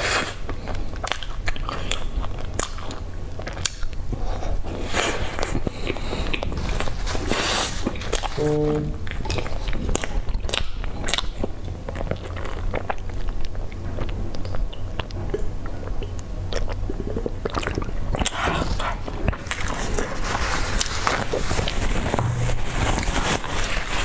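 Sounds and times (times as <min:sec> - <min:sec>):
person chewing food: 0:00.0 - 0:08.4, 0:09.0 - 0:20.1
steady low hum: 0:00.4 - 0:24.0.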